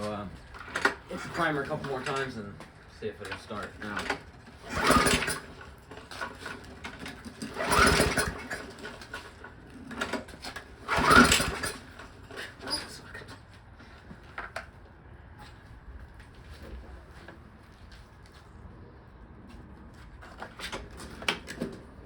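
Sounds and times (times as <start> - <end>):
recoil starter rope whirring rattle: 0.0 - 13.6
engine turning over: 0.5 - 2.4, 3.2 - 13.3.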